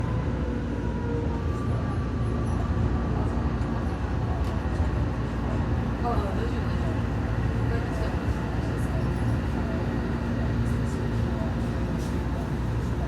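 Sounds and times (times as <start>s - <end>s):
train running low rumble: 0.0s - 13.0s.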